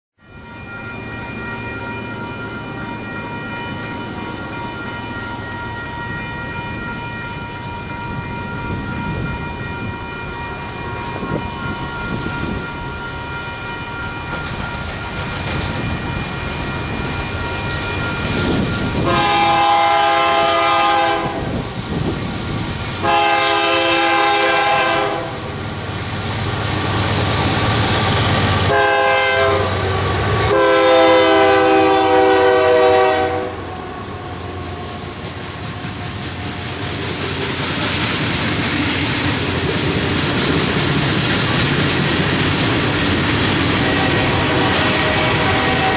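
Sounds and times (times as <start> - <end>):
steady high ringing: 0.2 - 20.4
locomotive engines rumbling: 0.3 - 45.9
locomotive air horn: 18.9 - 21.6, 23.0 - 25.6, 28.6 - 34.5, 43.8 - 45.9.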